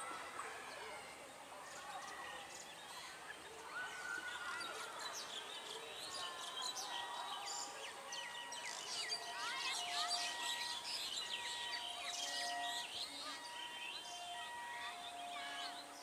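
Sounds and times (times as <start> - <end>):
faint background noise: 0.0 - 16.0
birds chirping and calling: 4.3 - 16.0
short whistle-like tones: 6.8 - 16.0.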